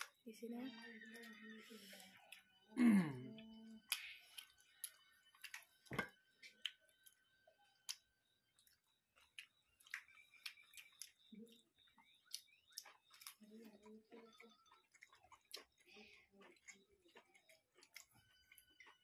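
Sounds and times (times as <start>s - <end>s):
person humming: 2.7s - 3.5s
people chewing with lip smacks: 3.4s - 19.0s.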